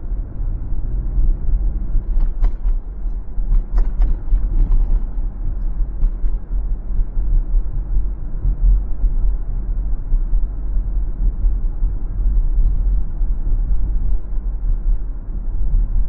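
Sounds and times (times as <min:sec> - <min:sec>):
car road rumble: 0:00.0 - 0:16.0
creaks and rattles: 0:01.9 - 0:06.6.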